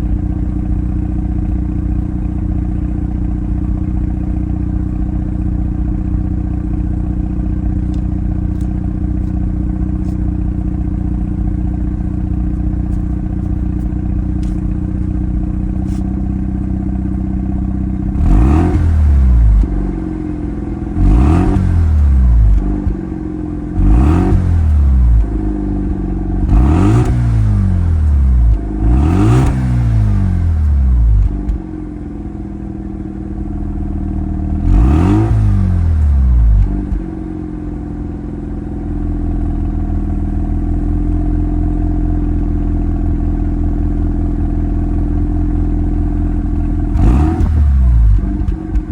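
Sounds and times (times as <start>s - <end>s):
engine revving blips: 18.2s - 19.7s, 21.0s - 23.0s, 23.8s - 25.3s, 26.5s - 31.6s, 46.9s - 48.9s.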